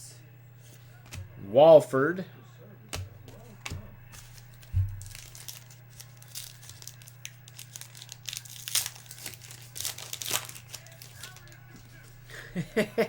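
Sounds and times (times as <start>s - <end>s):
low electrical hum: 0.0s - 13.0s
foil wrapper crinkling and tearing: 2.9s - 12.2s.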